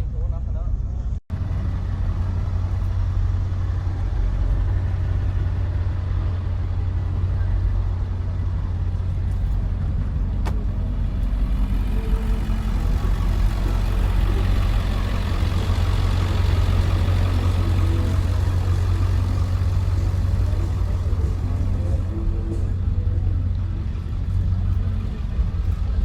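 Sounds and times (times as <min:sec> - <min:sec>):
motor vehicle rumbling: 0:00.0 - 0:26.0.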